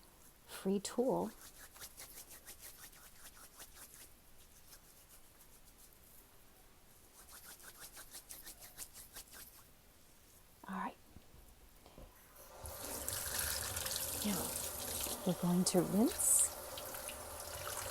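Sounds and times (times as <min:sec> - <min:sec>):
coffee grounds rubbed between hands: 0:01.3 - 0:06.2, 0:07.1 - 0:09.7.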